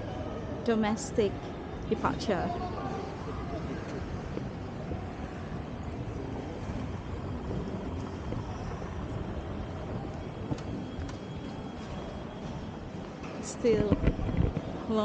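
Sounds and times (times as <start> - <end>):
airport terminal rumble: 0.0 - 15.0.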